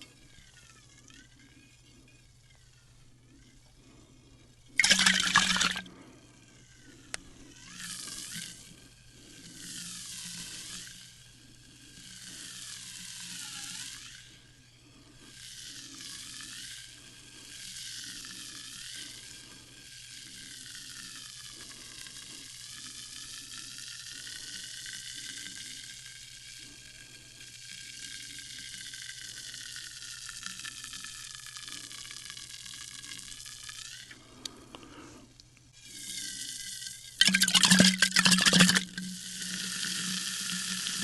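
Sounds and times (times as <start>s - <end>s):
faint low hum: 0.0s - 28.7s
sparkling water fizzing: 4.8s - 5.8s, 37.2s - 39.0s.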